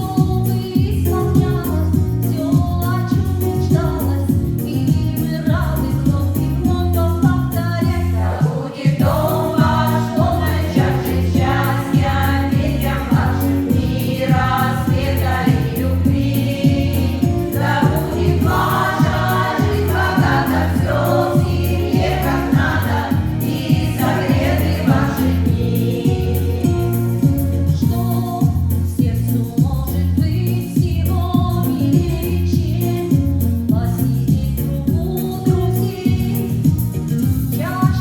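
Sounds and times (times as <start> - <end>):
voices singing over backing track: 0.0 - 38.0
repeating bass line: 9.0 - 27.6.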